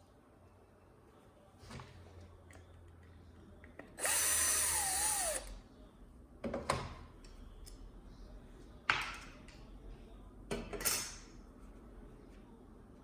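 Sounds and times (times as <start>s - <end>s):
power drill driving a screw: 4.0s - 5.5s.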